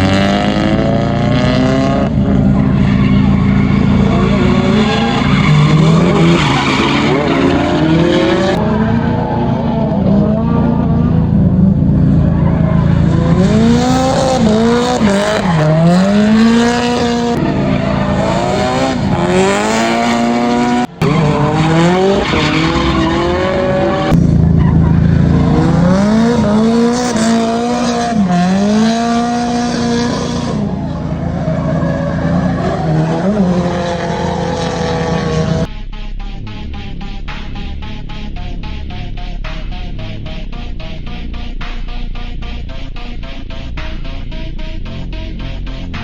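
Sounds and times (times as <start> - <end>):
car engines revving hard: 0.0 - 35.7, 36.8 - 46.0
tyres squealing and skidding: 1.8 - 35.7.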